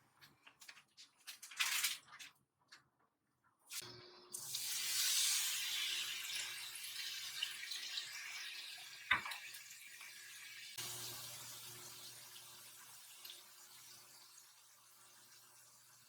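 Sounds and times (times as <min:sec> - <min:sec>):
tap water running into sink: 0:04.4 - 0:16.0.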